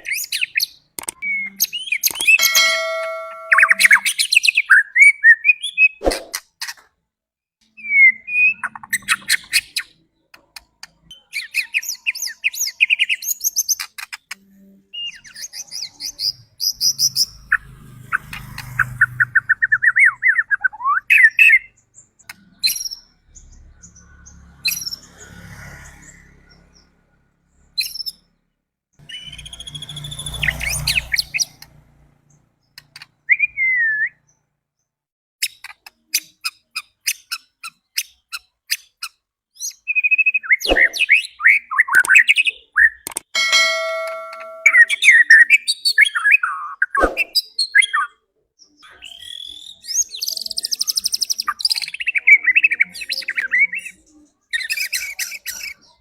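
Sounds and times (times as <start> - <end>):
songbird singing: 0.0 - 6.0, 7.7 - 25.1, 29.0 - 34.5, 39.6 - 56.0.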